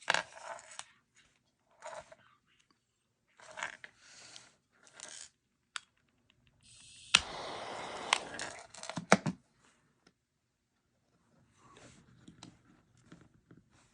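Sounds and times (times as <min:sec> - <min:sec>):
small parts rustling: 0:00.0 - 0:02.7, 0:03.3 - 0:07.0
gas hissing: 0:06.6 - 0:08.7
lighter clicks: 0:06.7 - 0:08.4.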